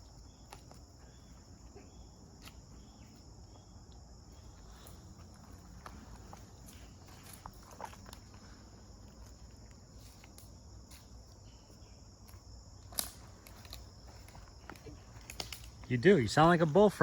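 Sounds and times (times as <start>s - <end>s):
footsteps on woodland trail: 0.0s - 17.0s
insects chirring: 0.0s - 17.0s.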